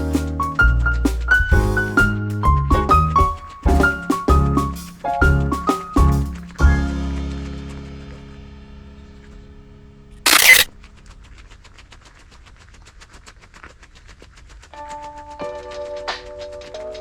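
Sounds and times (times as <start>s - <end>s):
camera shutter: 10.3s - 10.7s.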